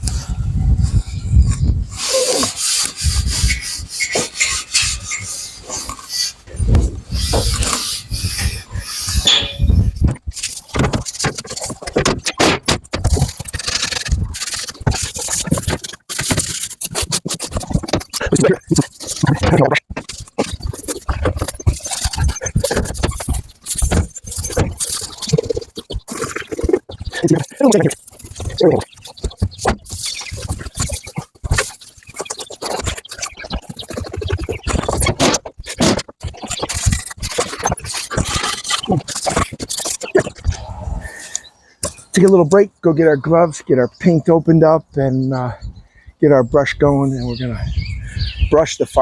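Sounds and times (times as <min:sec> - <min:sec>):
scuff pad rubbing painted steel: 0:02.0 - 0:40.4.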